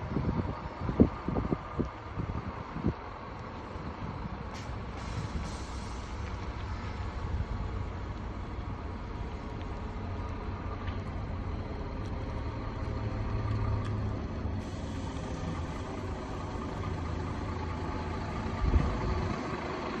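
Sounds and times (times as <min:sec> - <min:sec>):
bus engine rumbling: 0:00.0 - 0:20.0
road noise: 0:00.0 - 0:20.0.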